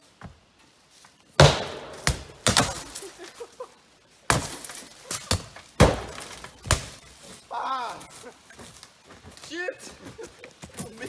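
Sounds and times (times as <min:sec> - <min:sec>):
heavy blows against a car: 0:01.4 - 0:02.9, 0:05.8 - 0:06.9
broken glass rattling: 0:01.4 - 0:03.1, 0:05.8 - 0:06.9.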